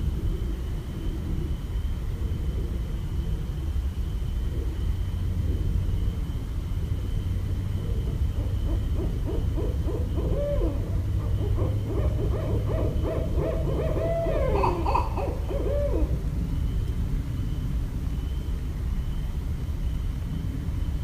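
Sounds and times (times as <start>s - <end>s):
owls hooting: 7.8s - 16.2s.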